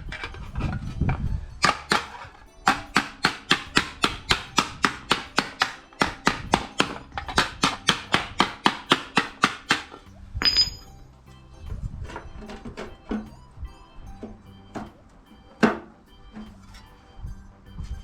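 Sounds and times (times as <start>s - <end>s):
ringing metallic clink: 10.4s - 11.1s.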